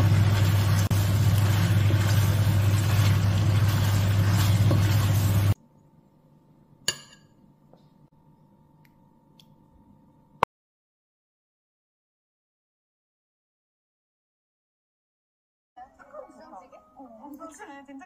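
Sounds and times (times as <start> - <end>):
food sizzling in a frying pan: 0.0 - 5.6
wooden spatula stirring: 0.1 - 5.6
clink on a ceramic plate: 6.9 - 7.3.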